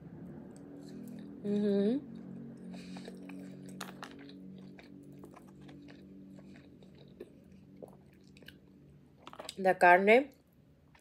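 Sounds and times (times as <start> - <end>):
faint low hum: 0.0 - 11.0
person chewing food: 2.1 - 9.6.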